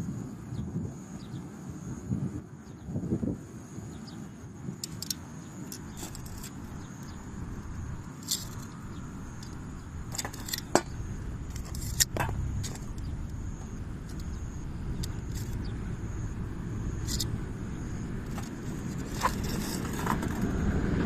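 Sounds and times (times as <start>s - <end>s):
low steady rumble: 4.4s - 21.0s
metallic clicks and clinks: 4.8s - 7.1s, 8.1s - 10.9s, 15.0s - 15.7s, 17.0s - 17.3s.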